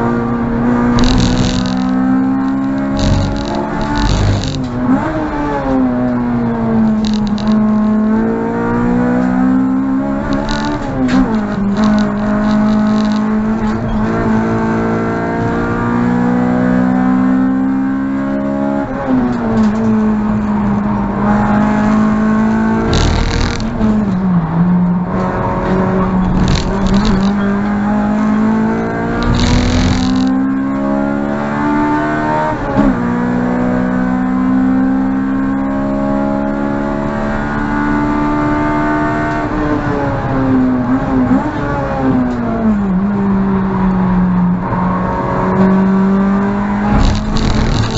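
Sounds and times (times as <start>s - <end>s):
car engine at high revs: 0.0s - 47.9s
short noisy rushes: 46.8s - 47.9s.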